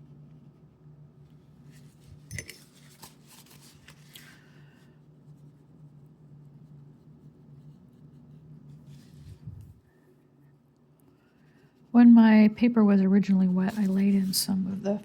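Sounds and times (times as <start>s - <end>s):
steady low hum: 0.0s - 15.0s
brush dabbing on paper: 5.1s - 9.8s, 13.4s - 14.6s.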